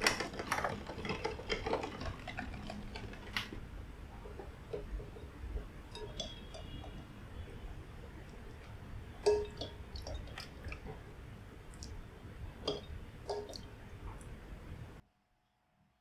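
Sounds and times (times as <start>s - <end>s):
small clicking handling noises: 0.0s - 11.1s
utensil clinking against dish: 0.0s - 14.9s
low steady hum: 0.0s - 15.0s.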